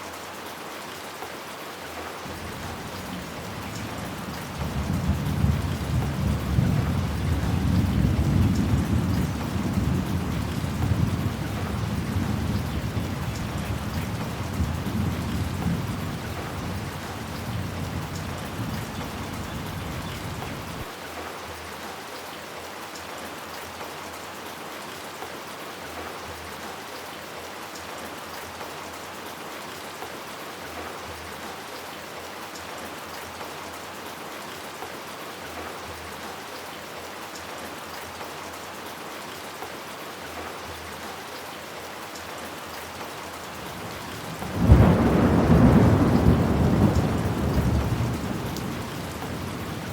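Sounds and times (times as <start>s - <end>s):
rain on hard surfaces: 0.0s - 49.9s
low thunder rumble: 43.6s - 49.9s.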